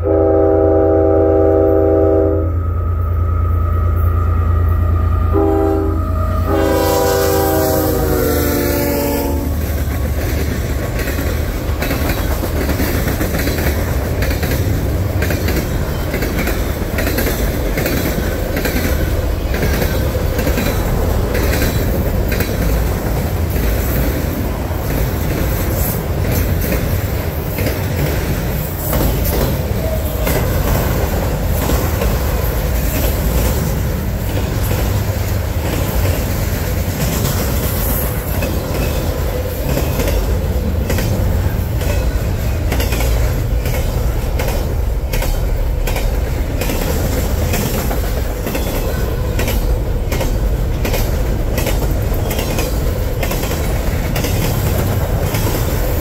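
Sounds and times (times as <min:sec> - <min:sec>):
locomotive air horn: 0:00.0 - 0:09.6
freight cars rolling by: 0:04.1 - 0:56.0
wheels clicking over rail joints: 0:08.5 - 0:56.0.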